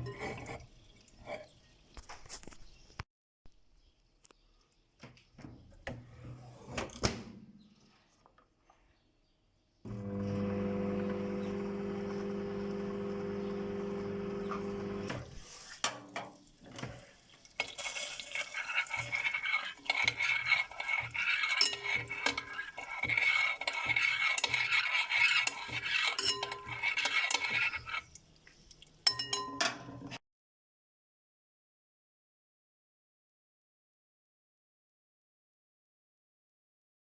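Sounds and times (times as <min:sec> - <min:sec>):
utensil clinking against dish: 0:17.6 - 0:28.0, 0:29.0 - 0:30.0.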